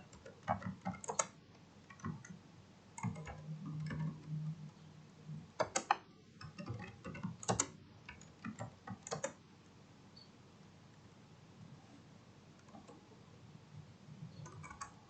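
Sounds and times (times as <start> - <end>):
keyboard key clicks: 5.6 - 9.4.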